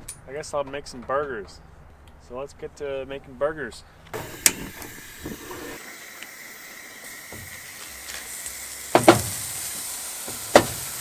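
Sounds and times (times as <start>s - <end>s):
burgers sizzling: 4.2s - 11.0s.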